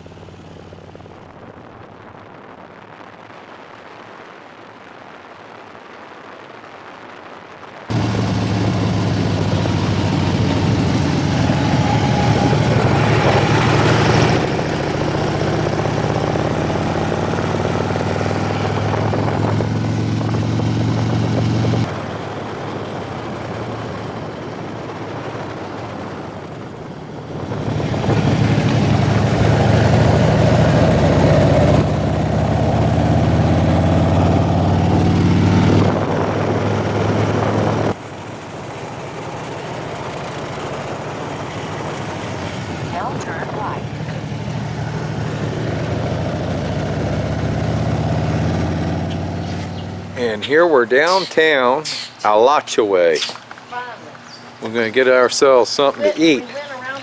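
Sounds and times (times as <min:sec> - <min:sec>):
wind rush: 0:00.0 - 0:52.6
motorcycle engine running: 0:07.9 - 0:50.4.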